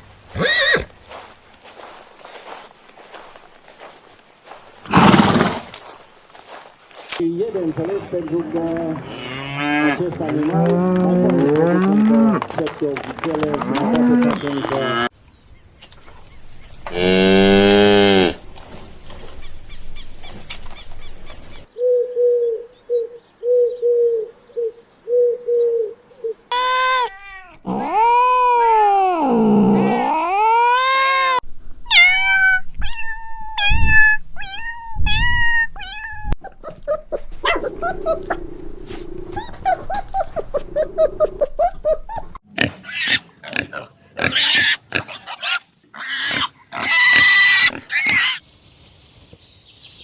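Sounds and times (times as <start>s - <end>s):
cat meowing: 26.6s - 28.2s, 30.8s - 36.4s.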